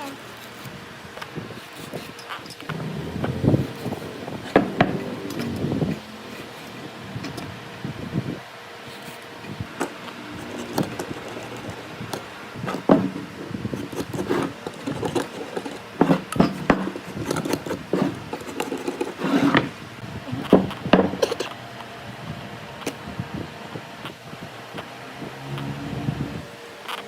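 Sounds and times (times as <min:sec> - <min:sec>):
wood knocking and rubbing: 0:02.7 - 0:06.0, 0:09.8 - 0:19.7.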